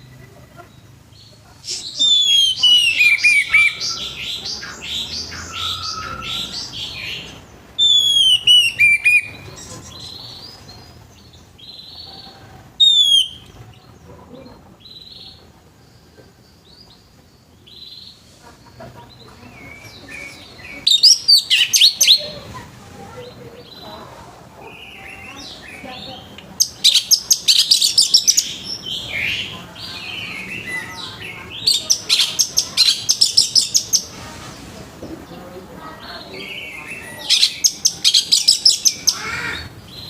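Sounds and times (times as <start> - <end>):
quiet bird warbling: 1.6 - 10.3
bird whistling phrases: 1.7 - 9.4, 12.8 - 13.5.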